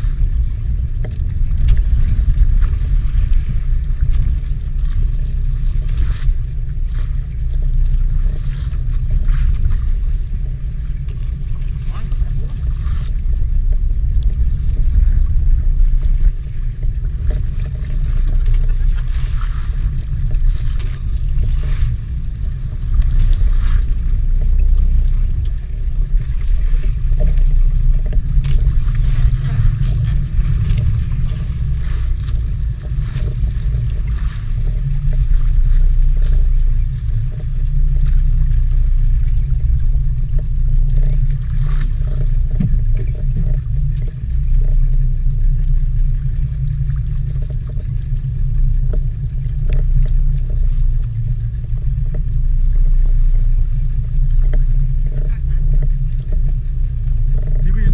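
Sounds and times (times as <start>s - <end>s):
boat engine low rumble: 0.0s - 57.9s
faint ticks and hiss: 22.4s - 57.7s.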